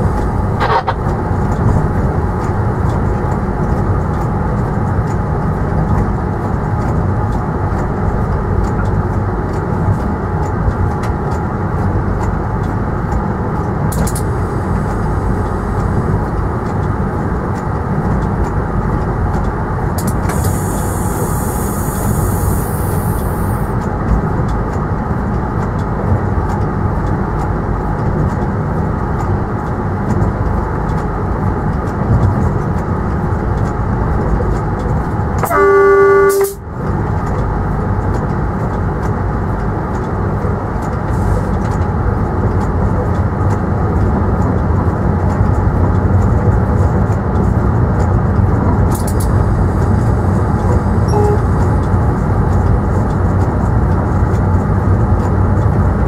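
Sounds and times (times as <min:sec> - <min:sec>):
train rumbling on rails: 0:00.0 - 0:56.0
train horn blast: 0:35.4 - 0:36.6, 0:51.1 - 0:51.6.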